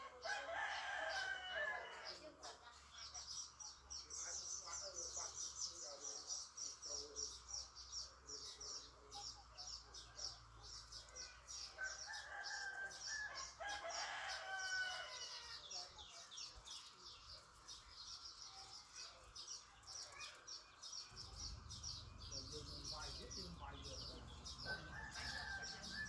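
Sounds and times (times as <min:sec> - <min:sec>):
rooster crowing: 0:00.1 - 0:02.1, 0:11.8 - 0:15.6, 0:24.0 - 0:26.0.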